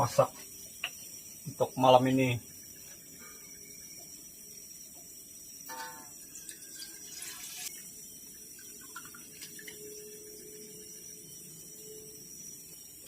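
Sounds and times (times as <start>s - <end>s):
clinks and knocks: 5.7s - 6.2s
water splashing and pouring: 6.5s - 7.9s, 8.6s - 10.0s.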